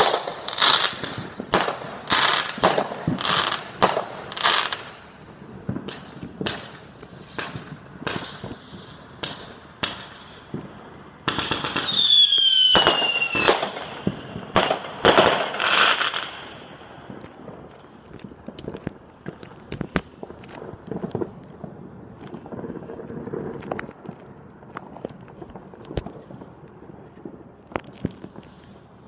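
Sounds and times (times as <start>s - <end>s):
whistling firework: 0.0s - 17.3s
fireworks bangs and cracks: 0.0s - 29.0s.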